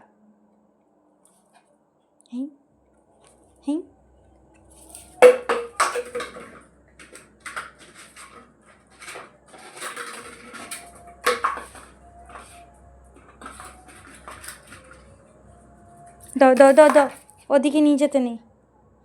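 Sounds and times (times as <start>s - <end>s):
plastic bottle knocking on floor: 5.2s - 7.7s.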